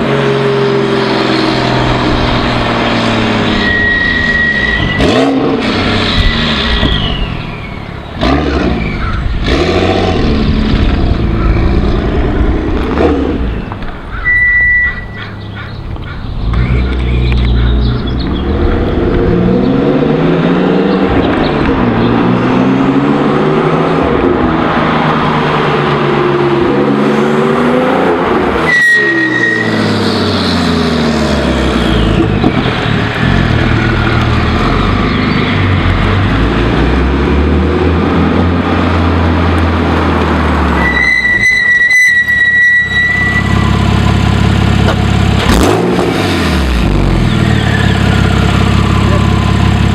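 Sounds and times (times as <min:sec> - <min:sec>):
car engine revving: 0:00.0 - 0:49.9
high turbo whistle: 0:03.4 - 0:05.3, 0:14.2 - 0:15.2, 0:28.6 - 0:30.2, 0:40.8 - 0:43.8.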